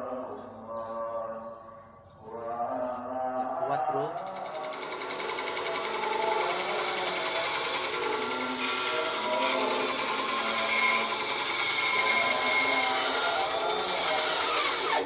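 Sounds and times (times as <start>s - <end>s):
bandsaw cutting wood: 4.1s - 15.0s.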